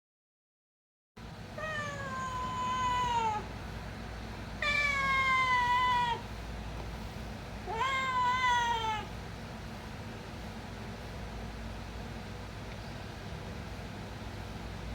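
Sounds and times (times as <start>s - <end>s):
cat meowing: 1.6s - 3.5s, 4.6s - 6.3s, 7.6s - 9.2s.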